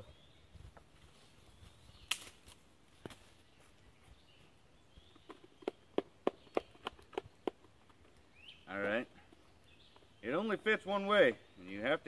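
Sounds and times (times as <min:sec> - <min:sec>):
light wooden clicks and knocks: 0:05.1 - 0:10.1.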